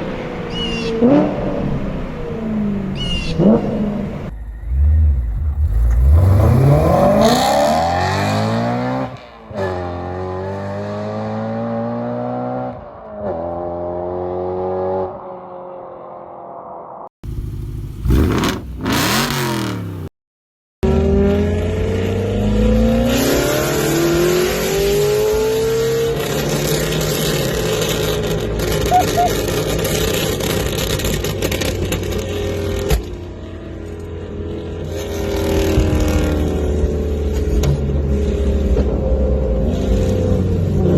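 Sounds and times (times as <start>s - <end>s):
car engine revving: 1.0s - 15.2s, 17.2s - 20.1s.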